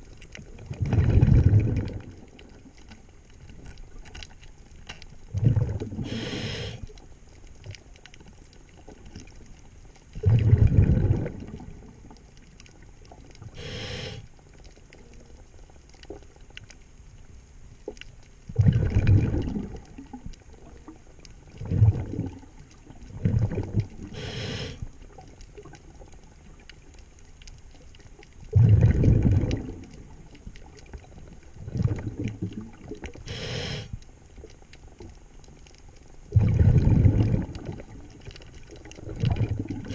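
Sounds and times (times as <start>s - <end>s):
exhaled bubbles rumbling: 0.0s - 16.6s, 17.8s - 39.9s
regulator hissing inhales: 6.0s - 6.9s, 13.6s - 14.3s, 24.1s - 24.9s, 33.3s - 34.0s.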